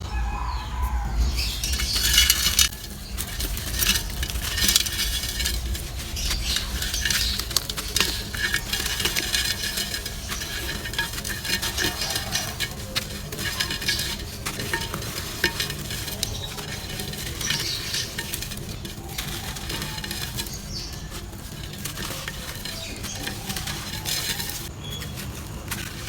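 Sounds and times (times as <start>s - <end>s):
dry material crushed in clay pot: 0.1s - 26.0s.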